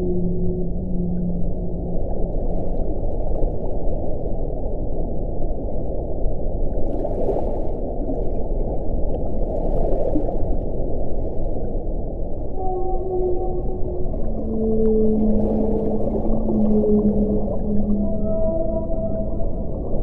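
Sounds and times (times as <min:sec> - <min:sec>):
low moaning tone: 0:00.0 - 0:03.6, 0:12.3 - 0:20.0.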